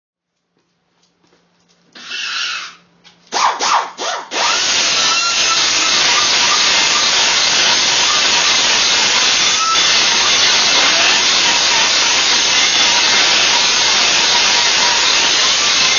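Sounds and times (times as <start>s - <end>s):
harsh hiss of power tool: 4.4s - 15.9s.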